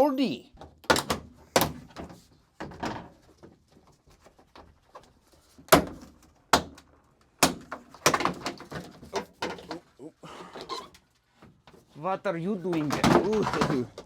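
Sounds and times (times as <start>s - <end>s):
plastic trim knocking and clattering: 0.6s - 3.6s, 5.7s - 9.9s, 12.7s - 14.0s.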